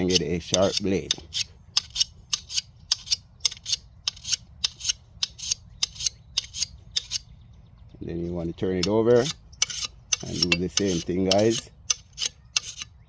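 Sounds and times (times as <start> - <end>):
file rasping on metal blade: 0.0 - 7.2, 8.8 - 13.0.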